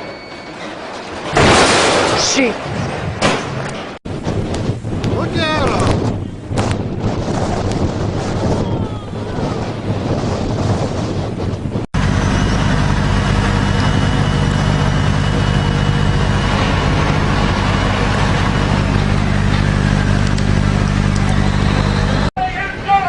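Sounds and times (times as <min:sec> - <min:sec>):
wind: 0:00.0 - 0:23.0
engine running steadily: 0:11.7 - 0:22.3.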